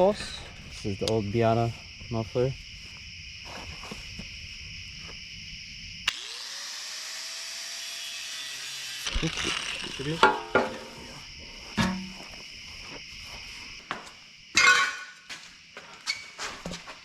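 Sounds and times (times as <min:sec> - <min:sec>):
crickets chirping: 0:00.0 - 0:17.0
power tool motor whine: 0:06.0 - 0:11.2
power tool switch click: 0:06.1 - 0:06.3
steel pipe clanking: 0:11.8 - 0:12.2.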